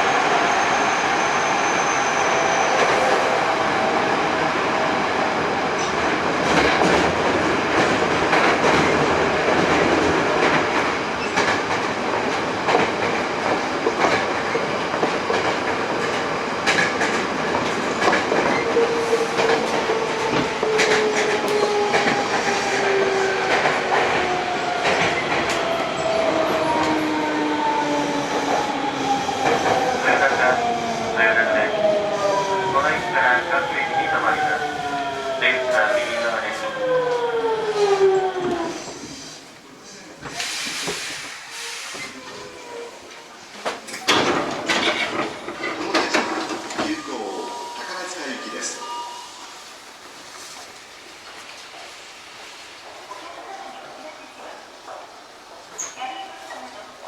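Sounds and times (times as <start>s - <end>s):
train running noise: 0.0s - 42.3s.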